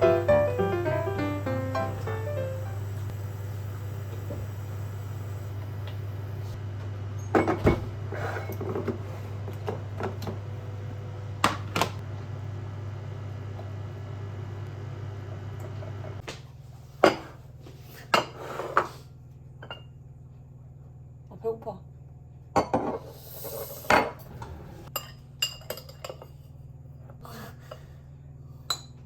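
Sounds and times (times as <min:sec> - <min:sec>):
low hum: 0:00.0 - 0:16.2
dishes and cutlery clinking: 0:23.9 - 0:26.5.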